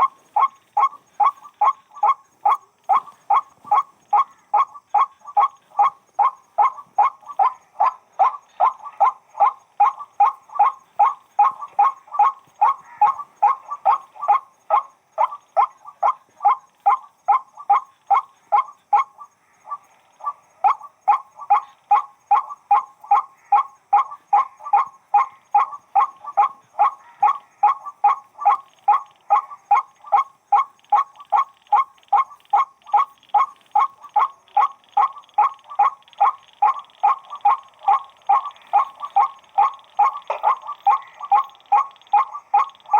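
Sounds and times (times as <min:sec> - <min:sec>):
bird calling repeated short notes: 0:00.0 - 0:42.9.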